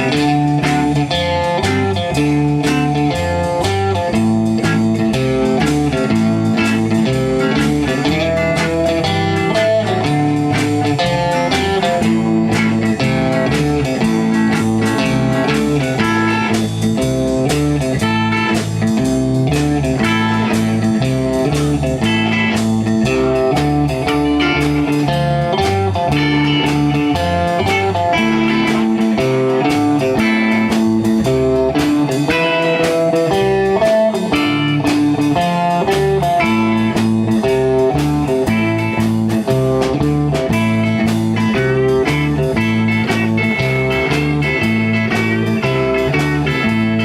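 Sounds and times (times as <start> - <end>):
band playing slow blues: 0.0 - 47.0
lead guitar: 0.0 - 47.0.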